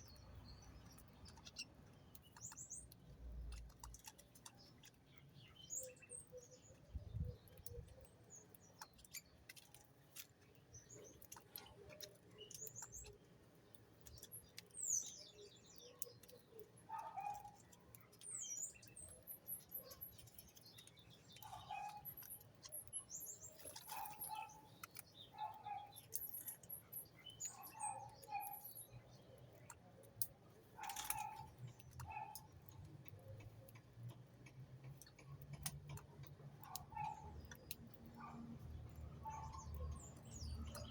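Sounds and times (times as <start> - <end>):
faint clicks: 7.4 - 40.9
birds chirping: 13.9 - 33.9, 36.3 - 40.9.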